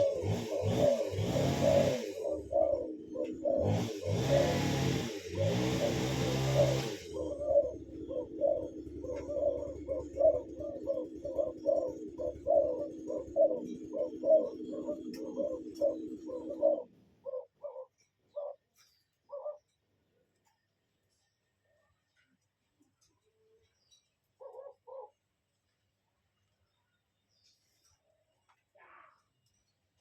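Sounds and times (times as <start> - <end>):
bird calling in short low notes: 28.7 - 29.4.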